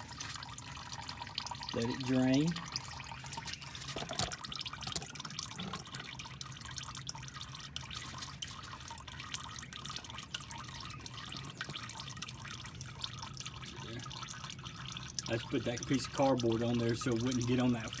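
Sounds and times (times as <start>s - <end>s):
oil dripping and trickling: 0.0s - 18.0s.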